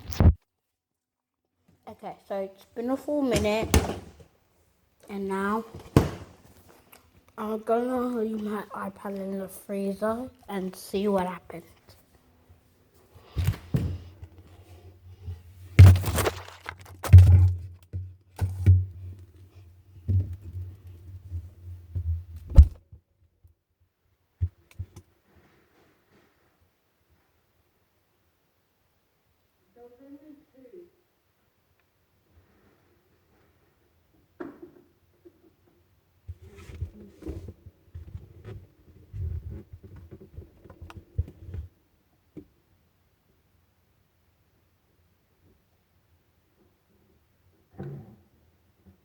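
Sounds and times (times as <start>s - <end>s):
low freezer hum: 13.5s - 19.4s
freezer door shutting: 15.8s - 17.6s.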